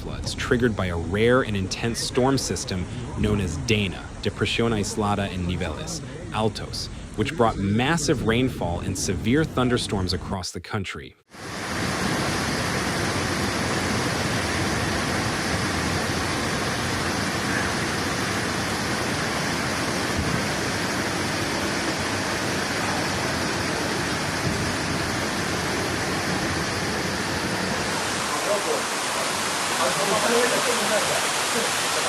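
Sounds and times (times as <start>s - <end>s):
floodwater rushing: 11.3s - 32.0s.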